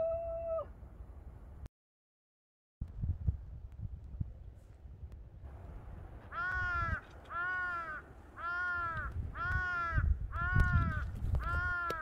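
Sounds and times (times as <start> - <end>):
wind on microphone: 2.8 - 7.7, 8.4 - 12.0
crow cawing: 6.3 - 12.0.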